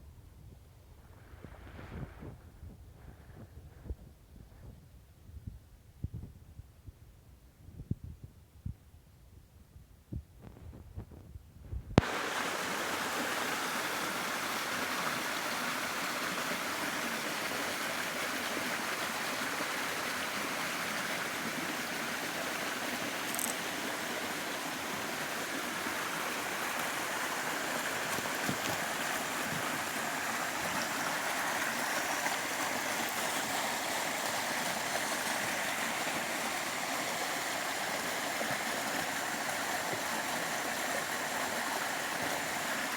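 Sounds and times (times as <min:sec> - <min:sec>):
stream water rushing: 0:12.0 - 0:42.9.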